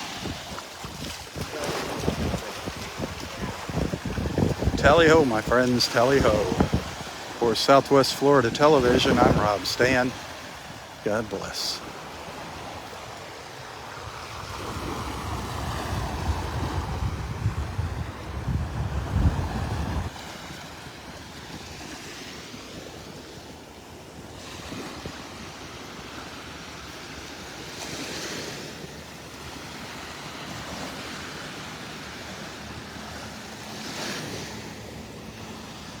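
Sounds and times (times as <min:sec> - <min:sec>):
wind buffeting microphone: 0:00.0 - 0:07.3, 0:14.3 - 0:20.2
waves breaking on sand: 0:00.0 - 0:36.0.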